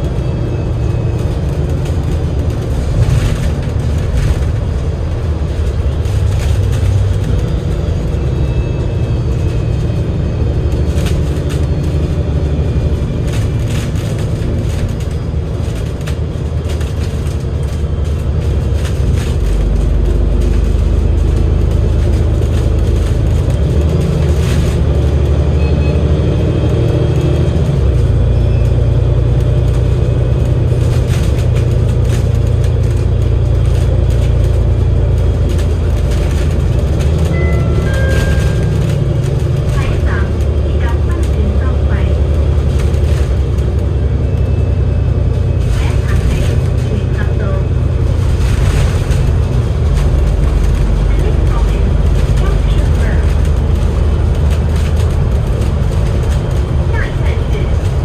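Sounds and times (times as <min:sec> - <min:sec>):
bus diesel engine drone: 0:00.0 - 0:58.0.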